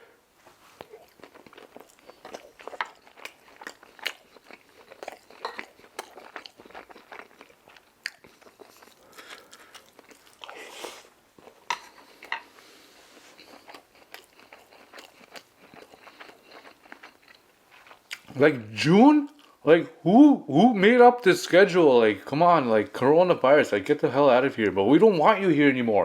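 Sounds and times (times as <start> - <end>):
person chewing crispy food: 0.6 - 18.4, 19.2 - 19.6.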